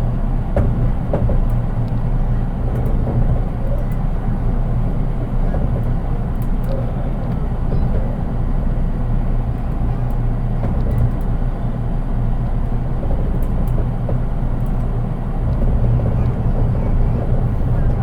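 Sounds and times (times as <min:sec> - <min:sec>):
constant hum: 0:00.0 - 0:18.0
train wheels rumbling on rail: 0:00.0 - 0:18.0.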